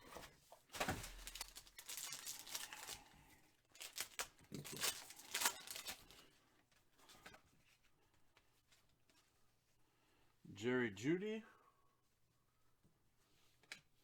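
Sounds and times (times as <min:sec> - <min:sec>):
cards being handled: 0:00.8 - 0:06.2
foil wrapper crinkling and tearing: 0:00.8 - 0:06.3.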